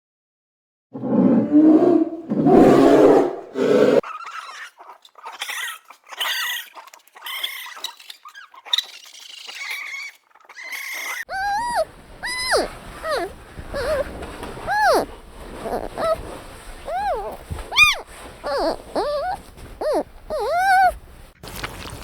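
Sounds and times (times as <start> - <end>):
deep animal roar: 1.0 - 4.0
rising and falling animal calls: 1.0 - 4.7, 9.5 - 16.2, 16.8 - 21.0
short high-pitched animal calls: 9.6 - 14.0, 14.7 - 16.2, 16.9 - 21.0.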